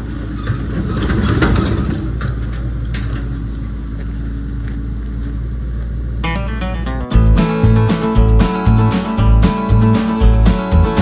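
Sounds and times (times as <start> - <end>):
excavator engine running: 6.2 - 11.0.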